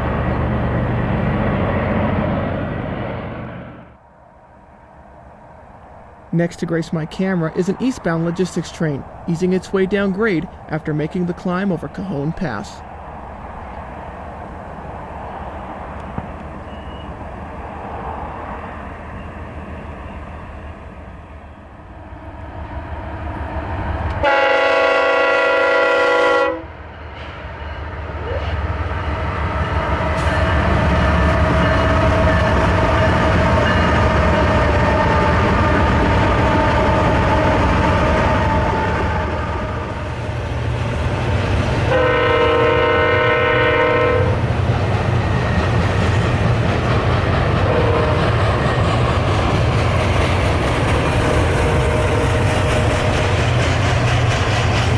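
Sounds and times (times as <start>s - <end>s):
freight train rumbling: 0.0s - 54.9s
locomotive air horn blasts: 24.2s - 26.7s, 41.9s - 44.4s, 47.7s - 48.2s.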